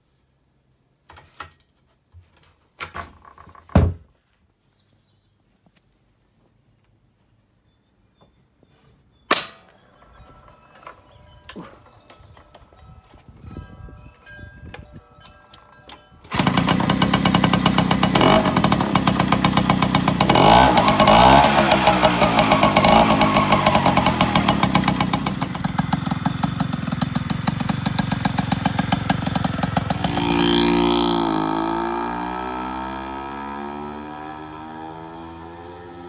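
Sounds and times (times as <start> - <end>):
moped two-stroke engine running: 16.3 - 32.4.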